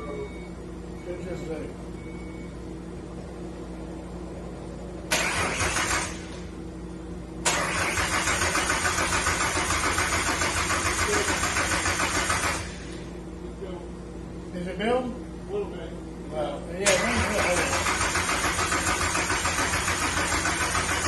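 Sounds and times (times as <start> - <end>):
starter motor cranking engine: 5.1 - 6.4, 7.4 - 13.0, 16.8 - 21.0.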